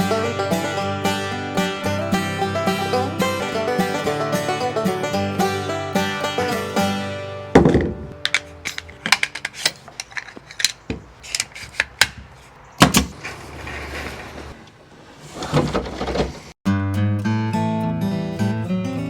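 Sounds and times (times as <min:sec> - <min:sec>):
loud thumps: 0:07.6 - 0:08.3.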